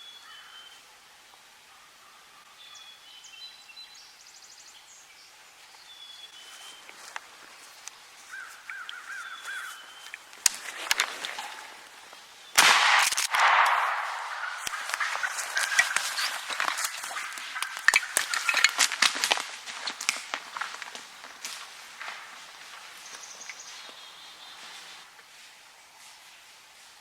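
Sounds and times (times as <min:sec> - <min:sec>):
songbirds chirping: 0:00.0 - 0:27.0
crows cawing: 0:08.3 - 0:09.9, 0:13.3 - 0:24.5
loud shotgun blast echoing: 0:12.6 - 0:16.7.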